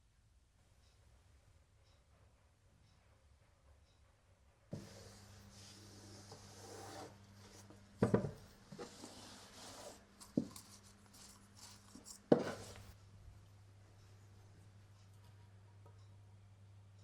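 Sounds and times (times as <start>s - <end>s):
faint low hum: 0.0s - 17.0s
light rubbing and rustling: 8.6s - 13.0s.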